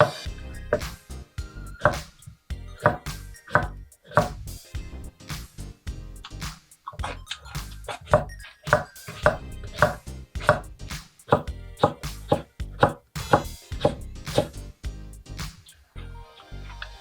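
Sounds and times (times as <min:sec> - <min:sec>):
knife chopping on cutting board: 0:11.3 - 0:14.5.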